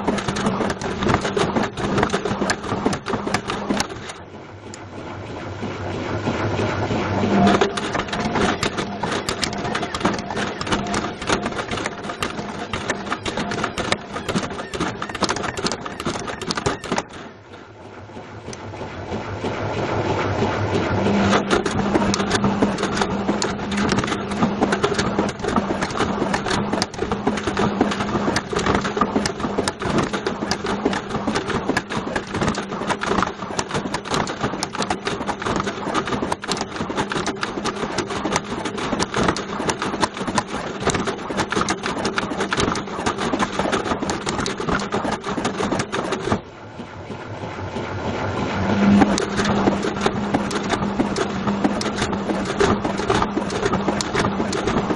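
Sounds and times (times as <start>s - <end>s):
object clattering in washing machine drum: 0.0s - 4.2s, 21.3s - 46.4s
motor hum: 0.0s - 54.9s.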